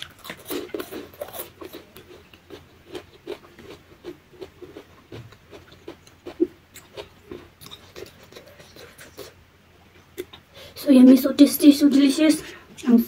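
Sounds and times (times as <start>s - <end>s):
person chewing food: 0.0s - 9.4s.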